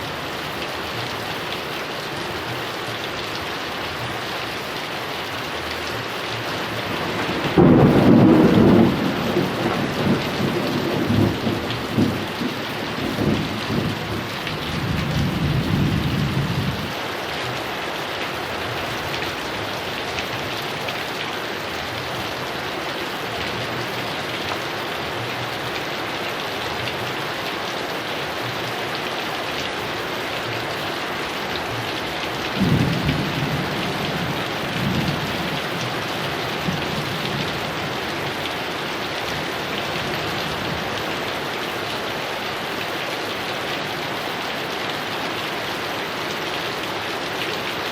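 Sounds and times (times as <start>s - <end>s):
heavy rain falling: 0.0s - 47.9s
thunder rumbling: 6.7s - 16.9s, 32.4s - 38.1s.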